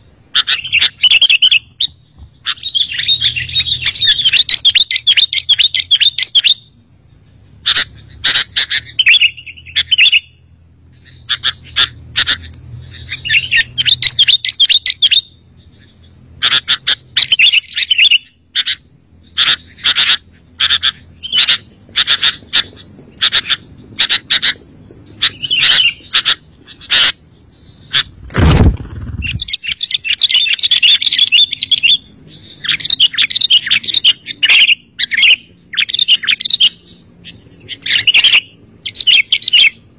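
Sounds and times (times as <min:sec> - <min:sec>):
birds chattering and whistling: 0:00.0 - 0:39.9
dull thump: 0:28.2 - 0:29.4.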